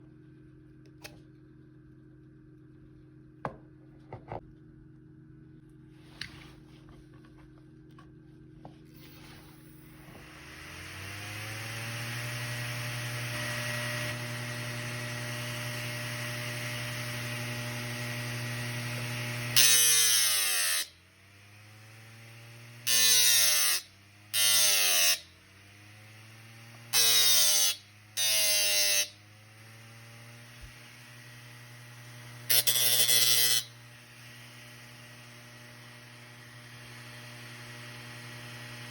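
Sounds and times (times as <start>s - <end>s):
electric sander motor humming: 9.9s - 38.9s.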